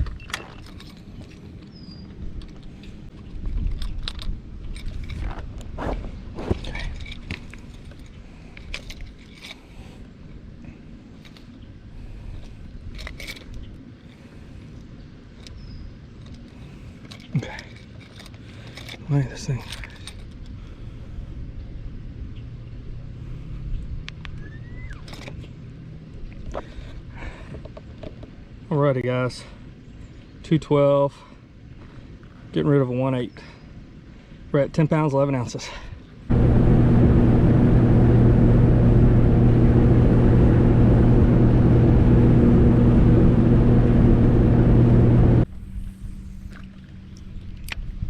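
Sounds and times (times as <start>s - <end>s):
wind and water noise: 0.0s - 48.0s
rising whistle-like tone: 24.4s - 25.1s
low rumble with hum: 36.2s - 48.0s
outboard engine running: 36.3s - 47.5s.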